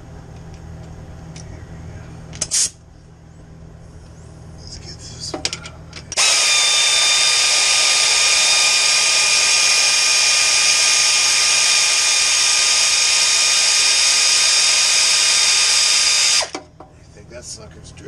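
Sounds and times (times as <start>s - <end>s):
air ratchet running: 6.2s - 16.6s.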